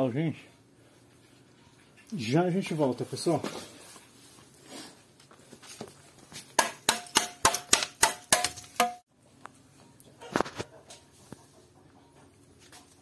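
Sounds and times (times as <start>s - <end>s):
metal tool tapping bricks: 6.6s - 9.0s.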